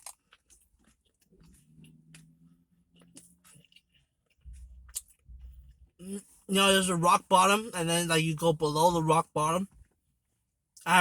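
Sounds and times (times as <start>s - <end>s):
man chewing food: 0.0s - 6.4s.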